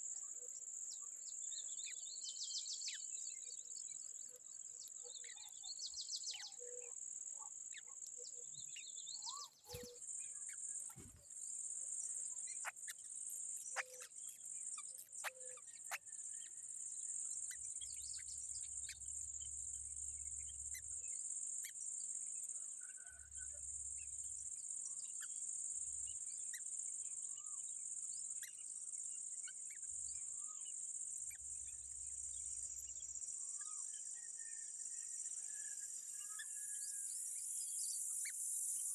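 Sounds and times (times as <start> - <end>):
bird chirps and clicks: 12.5 - 16.0.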